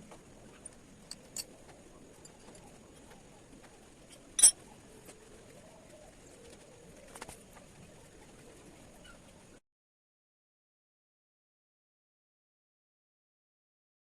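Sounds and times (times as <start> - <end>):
metal tools clinking: 4.3 - 4.6.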